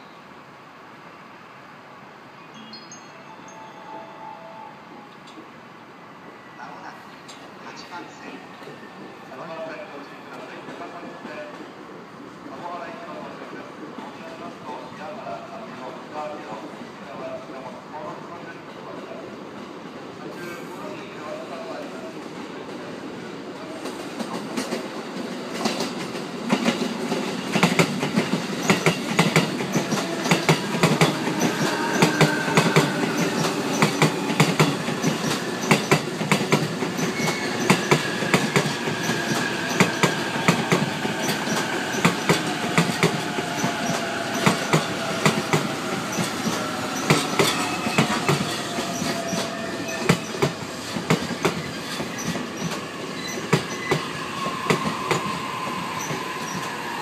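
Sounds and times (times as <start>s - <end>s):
train wheels clacking over rail joints: 25.5s - 54.1s.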